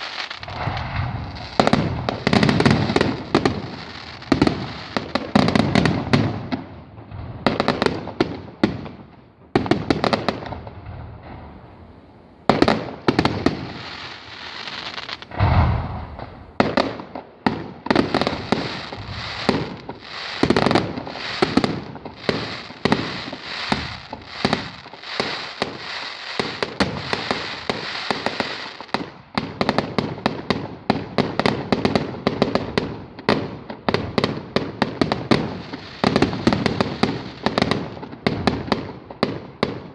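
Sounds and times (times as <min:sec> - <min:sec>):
firework shells bursting: 0:00.0 - 0:05.9, 0:12.5 - 0:29.7
firework crackling: 0:00.0 - 0:39.9
deep firework boom: 0:00.4 - 0:04.8, 0:14.9 - 0:16.8, 0:18.0 - 0:28.6.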